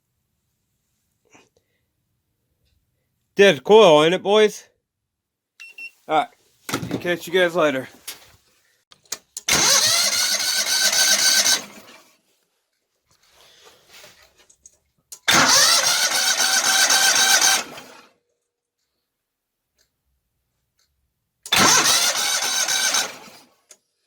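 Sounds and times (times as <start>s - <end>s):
electric starter motor cranking engine: 9.1s - 12.1s, 15.1s - 18.1s, 21.4s - 23.8s.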